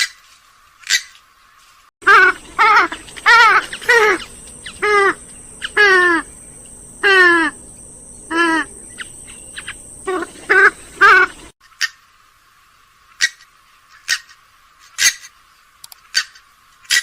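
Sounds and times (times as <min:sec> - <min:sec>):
swamphen short calls: 0:02.0 - 0:12.0.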